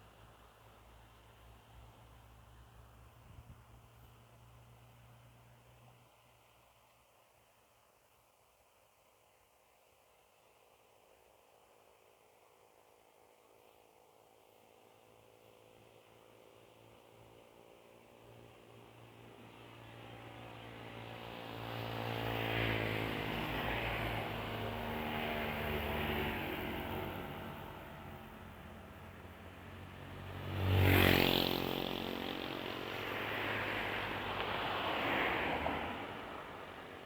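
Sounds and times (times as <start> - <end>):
vehicle passing on road: 19.1 - 37.0.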